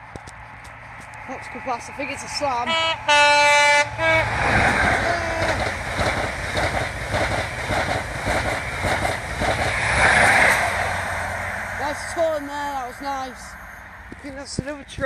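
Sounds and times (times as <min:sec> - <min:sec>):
train passing at speed: 0:00.0 - 0:15.0
two-tone train horn blasts: 0:02.6 - 0:05.5.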